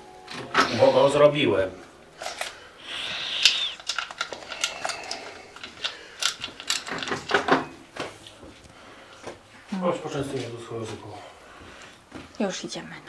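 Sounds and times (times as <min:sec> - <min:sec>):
metallic clicks and clanks of tools: 0:02.2 - 0:02.6, 0:03.4 - 0:07.8.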